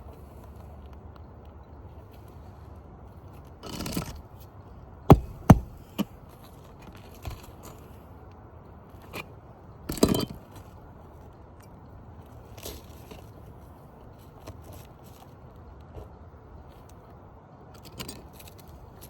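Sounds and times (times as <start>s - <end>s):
roofing tool scraping shingles: 5.1s - 6.0s
sharp knocks on shingles: 5.1s - 6.1s.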